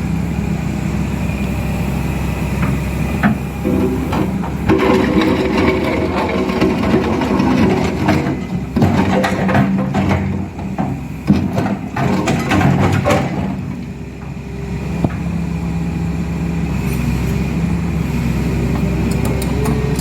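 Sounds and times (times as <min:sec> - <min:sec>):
excavator diesel engine running: 0:00.0 - 0:20.0
bucket clattering and scraping: 0:03.6 - 0:13.8.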